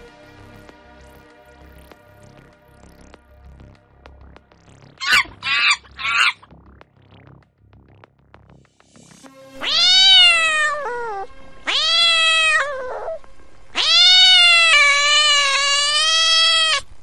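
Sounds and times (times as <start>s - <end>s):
cat meowing loudly: 5.0s - 6.4s, 9.6s - 16.9s.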